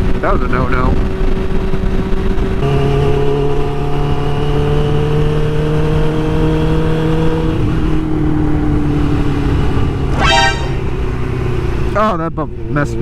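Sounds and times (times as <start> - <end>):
wind noise on microphone: 0.0 - 2.6.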